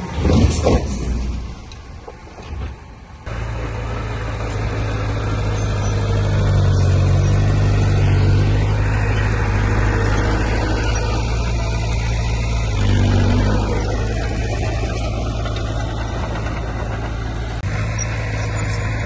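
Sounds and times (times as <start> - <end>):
heavy diesel engine humming: 1.2 - 19.0.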